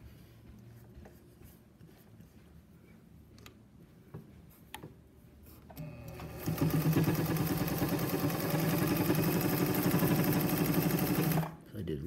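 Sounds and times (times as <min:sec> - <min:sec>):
sewing machine running: 0:05.8 - 0:11.6.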